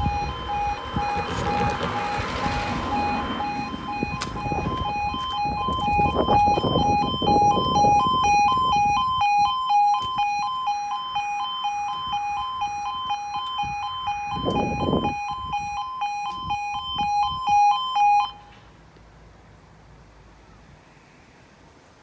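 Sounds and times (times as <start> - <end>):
low rumble: 0.0 - 6.8
level crossing alarm tones: 0.0 - 18.5.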